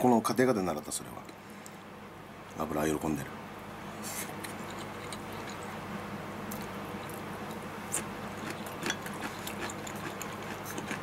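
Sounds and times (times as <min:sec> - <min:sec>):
steady low hum: 0:00.0 - 0:11.0
person chewing food: 0:04.4 - 0:05.8, 0:06.5 - 0:11.0.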